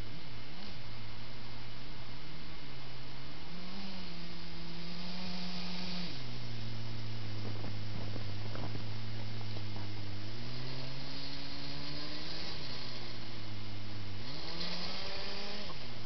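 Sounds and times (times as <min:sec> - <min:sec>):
electric motors humming: 0:03.4 - 0:16.0.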